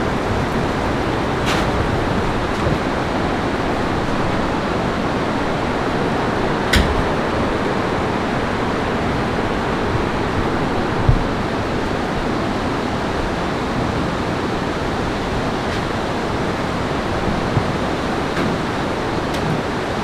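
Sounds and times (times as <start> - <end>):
heavy rain falling: 0.0 - 4.2.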